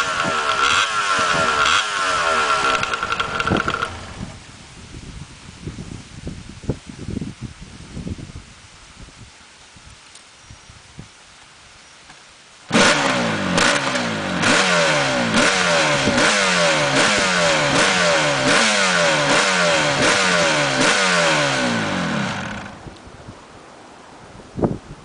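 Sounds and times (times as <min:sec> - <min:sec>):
motorcycle engine revving: 0:00.0 - 0:04.4, 0:12.7 - 0:22.9.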